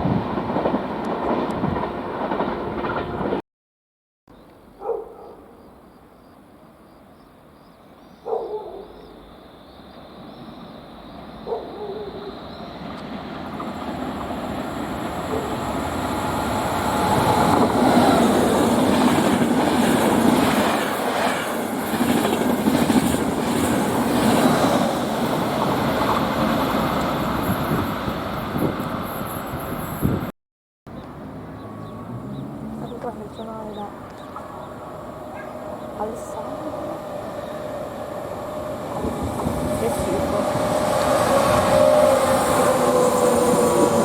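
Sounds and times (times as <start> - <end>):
train passing: 0.0 - 3.4, 5.2 - 30.3, 30.9 - 44.0
dog barking: 4.8 - 5.6, 8.2 - 9.1, 11.4 - 12.4, 35.3 - 35.6.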